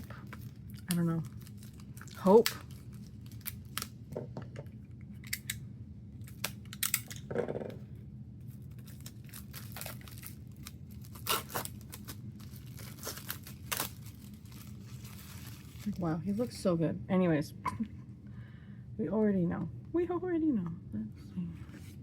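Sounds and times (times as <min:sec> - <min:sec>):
plastic and paper crinkling: 0:00.0 - 0:03.9, 0:08.4 - 0:16.6.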